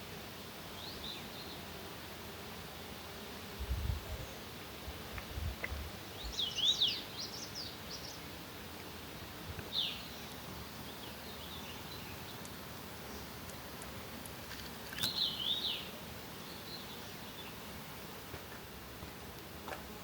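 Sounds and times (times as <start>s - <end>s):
steady outdoor hiss: 0.0s - 20.0s
songbird singing: 0.7s - 1.7s, 5.6s - 18.1s.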